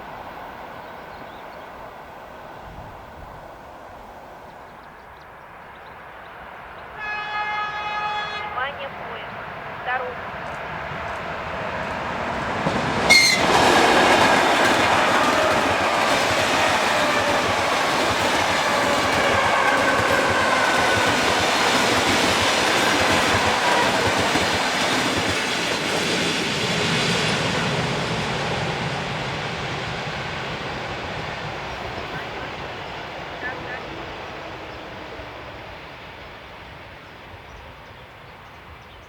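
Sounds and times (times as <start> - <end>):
train whine falling in pitch: 6.9 - 9.1, 12.6 - 25.8.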